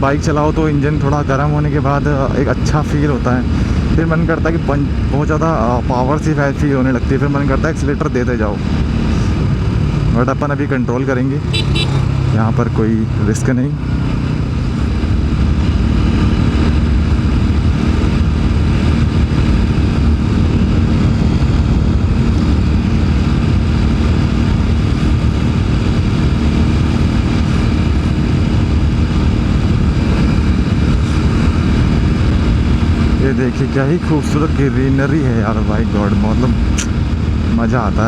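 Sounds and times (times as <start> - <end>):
wind noise on microphone: 0.0 - 10.5, 13.8 - 38.0
motorcycle engine cruising: 0.0 - 38.0.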